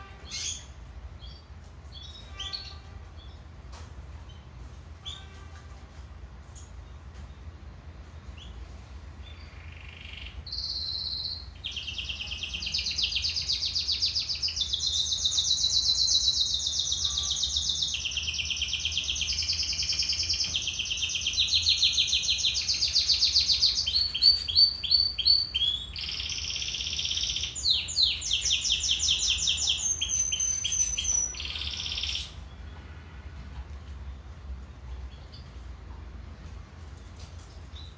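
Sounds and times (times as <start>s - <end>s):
canary singing trills: 0.0s - 3.6s, 4.2s - 5.6s, 8.2s - 32.9s.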